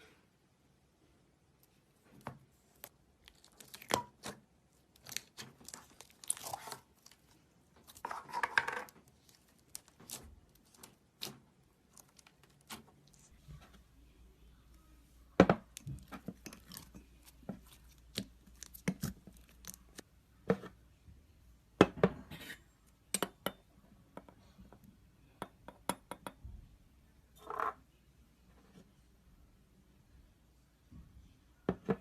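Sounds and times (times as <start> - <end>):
soft slime squelch: 0.9 - 8.2, 9.0 - 21.4.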